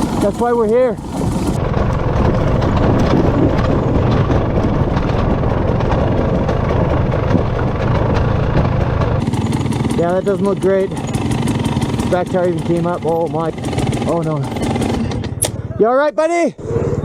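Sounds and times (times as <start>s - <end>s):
wind buffeting microphone: 0.0s - 12.7s
dirt bike engine running: 0.0s - 17.0s.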